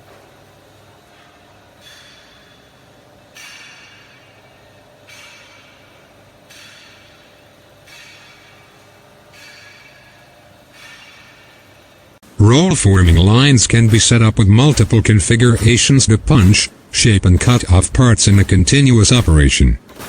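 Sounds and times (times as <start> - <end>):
machine low hum: 5.8 - 20.0.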